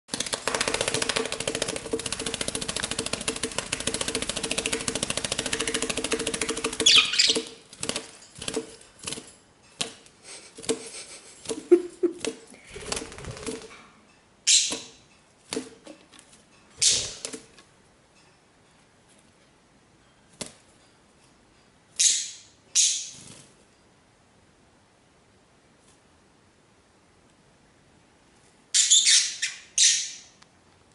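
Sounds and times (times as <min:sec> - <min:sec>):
bird wings flapping: 0:00.1 - 0:09.3, 0:10.6 - 0:13.7.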